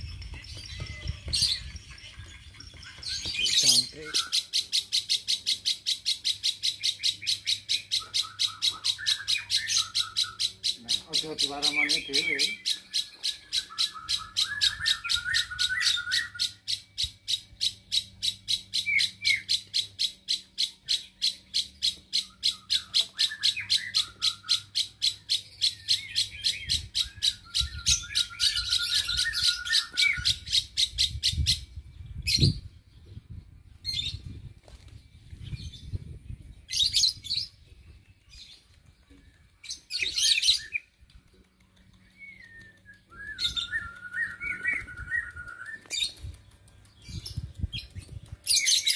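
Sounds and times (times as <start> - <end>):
warbling bird trills: 0.0 - 31.7
birds chirping shrilly: 0.0 - 34.4, 35.1 - 48.9.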